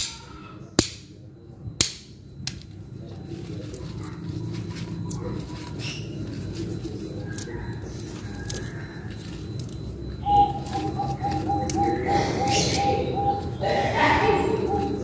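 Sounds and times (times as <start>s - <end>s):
scraping rustle: 3.2s - 9.9s.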